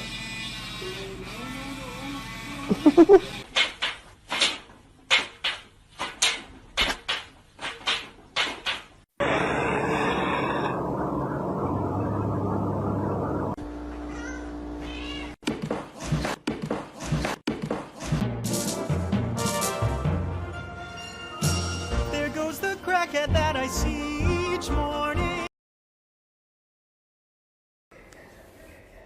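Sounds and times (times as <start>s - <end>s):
steady tone: 9.2s - 13.6s
cat meowing: 14.1s - 15.4s.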